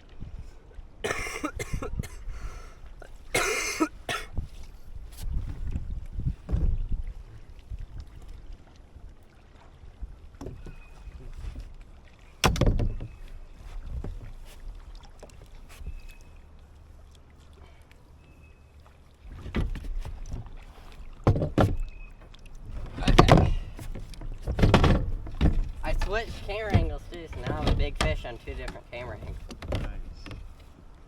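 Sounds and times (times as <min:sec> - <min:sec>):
wind rumble on microphone: 0:00.0 - 0:03.4, 0:04.0 - 0:09.2, 0:09.8 - 0:15.0
knocks and thumps on kayak hull: 0:03.9 - 0:08.4, 0:10.2 - 0:11.8, 0:12.4 - 0:16.0, 0:19.3 - 0:30.7.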